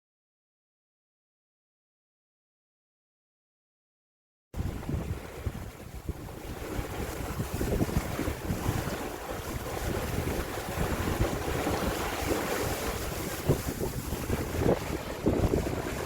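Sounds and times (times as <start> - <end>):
water rushing along hull: 4.6 - 16.0
wind buffeting microphone: 4.6 - 16.0.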